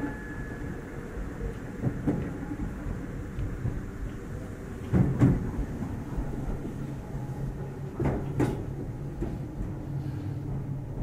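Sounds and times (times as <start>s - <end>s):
electric train humming: 0.0s - 11.0s
wheels clacking over rail joints: 7.9s - 9.8s.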